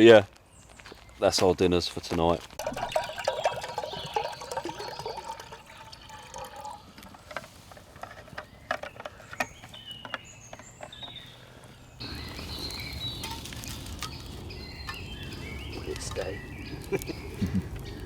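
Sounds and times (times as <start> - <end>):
bird chirps: 2.6 - 6.9, 8.2 - 18.0
water trickling and rushing: 2.6 - 7.8.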